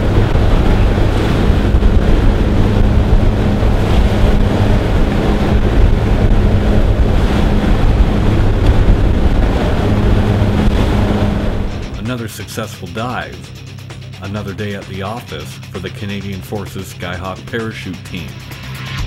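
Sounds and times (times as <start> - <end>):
wind buffeting microphone: 0.0 - 12.0
low even hum: 0.0 - 12.2
aircraft engines droning: 0.0 - 19.0.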